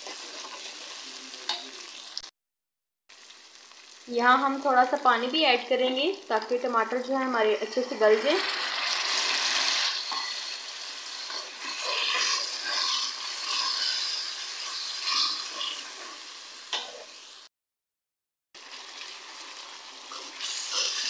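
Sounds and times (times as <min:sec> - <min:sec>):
food sizzling in hot oil: 0:00.0 - 0:02.3, 0:03.1 - 0:17.5, 0:18.6 - 0:21.0
steel spoon scraping a pan: 0:08.1 - 0:17.2, 0:20.1 - 0:21.0.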